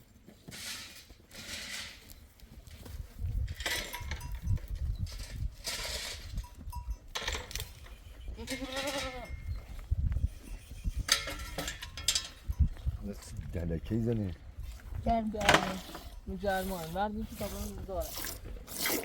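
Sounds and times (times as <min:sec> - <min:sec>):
rustling noise: 0:00.0 - 0:08.1
goat bleat: 0:08.4 - 0:09.4.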